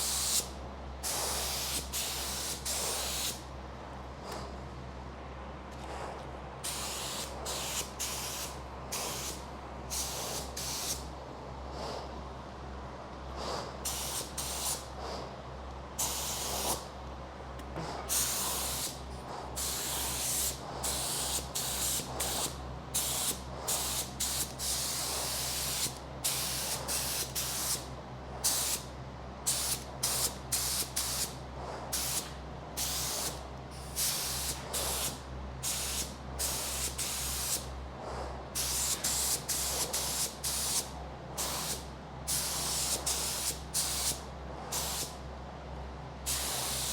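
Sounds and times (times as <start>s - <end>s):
spray gun hissing bursts: 0.0s - 3.4s, 6.6s - 11.1s, 13.8s - 14.9s, 16.0s - 16.8s, 18.1s - 28.9s, 29.5s - 37.7s, 38.6s - 45.2s, 46.3s - 46.9s
steady low hum: 0.0s - 46.9s.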